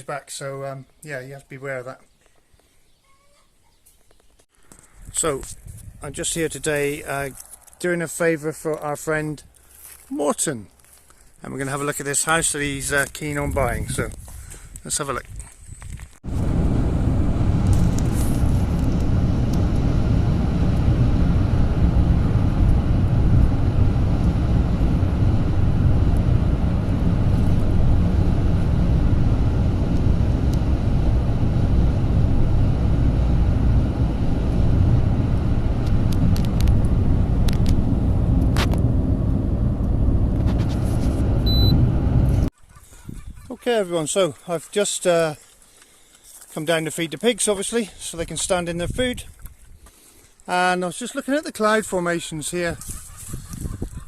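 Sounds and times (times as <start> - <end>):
car road and engine noise: 16.2 - 42.5.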